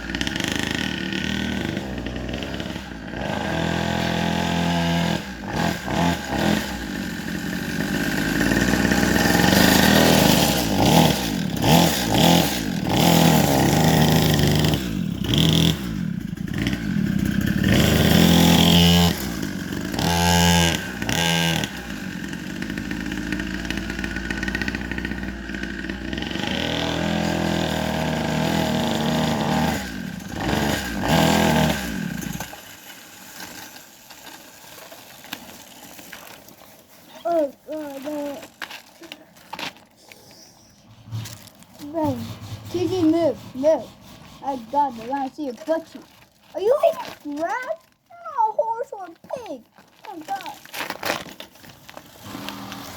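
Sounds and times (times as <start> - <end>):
dirt bike engine revving: 0.0 - 35.9, 52.1 - 52.9.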